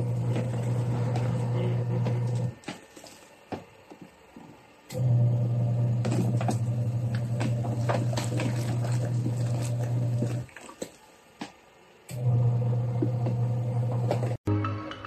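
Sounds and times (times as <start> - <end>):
washing machine motor humming: 0.0 - 14.4
water sloshing in tub: 6.1 - 11.6.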